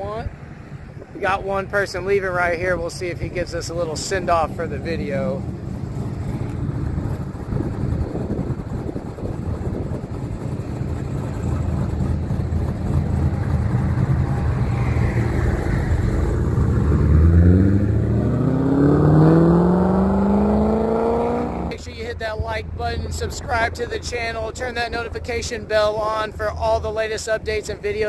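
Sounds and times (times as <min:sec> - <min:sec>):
car engine accelerating: 0:02.6 - 0:21.8.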